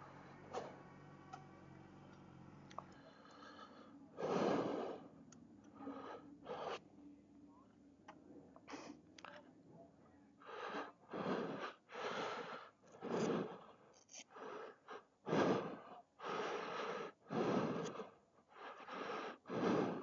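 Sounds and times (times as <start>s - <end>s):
person breathing hard: 2.7s - 6.9s, 10.4s - 20.0s.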